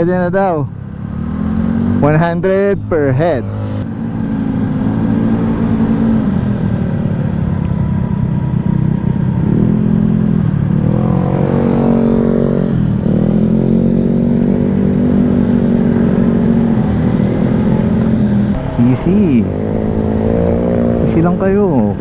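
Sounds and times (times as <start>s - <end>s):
dirtbike engine revving: 9.4s - 22.0s.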